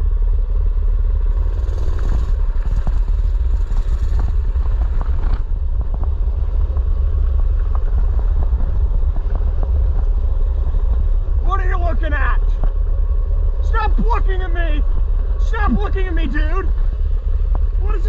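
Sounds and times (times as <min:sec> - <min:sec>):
small engine running: 0:00.0 - 0:05.8.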